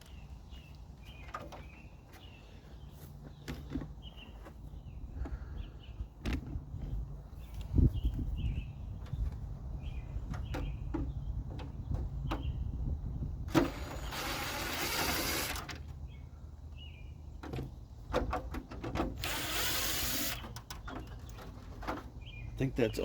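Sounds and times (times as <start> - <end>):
cordless power driver spinning: 13.5 - 15.8, 19.2 - 20.6
tool clicking against screws: 19.2 - 20.9.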